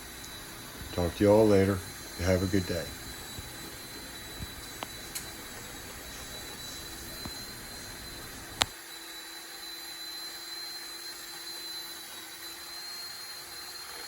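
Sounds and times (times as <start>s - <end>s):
chainsaw cutting log: 0.0s - 7.8s
electric chainsaw whining: 0.0s - 14.0s.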